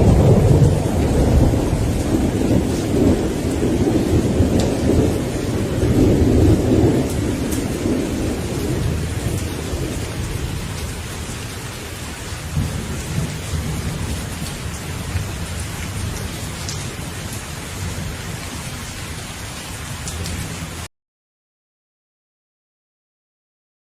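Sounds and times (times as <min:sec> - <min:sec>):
rolling thunder: 0:00.0 - 0:18.6
steady rain: 0:00.0 - 0:20.9.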